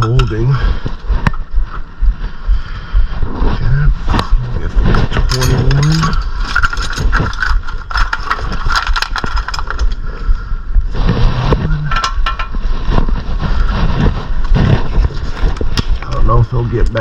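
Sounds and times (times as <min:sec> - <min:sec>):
low background hum: 0:00.0 - 0:17.0
metal tools clinking and scraping: 0:05.0 - 0:10.0, 0:11.9 - 0:12.5.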